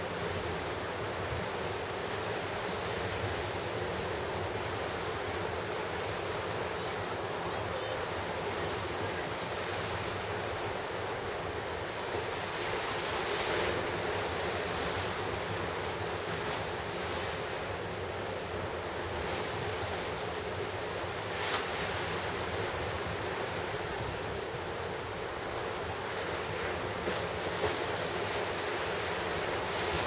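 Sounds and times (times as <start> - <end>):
ocean surf crashing: 0.0 - 30.0.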